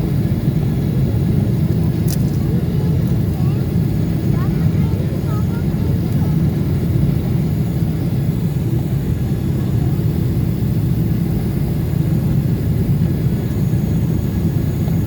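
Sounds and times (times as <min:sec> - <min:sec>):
airliner engine noise: 0:00.0 - 0:15.0.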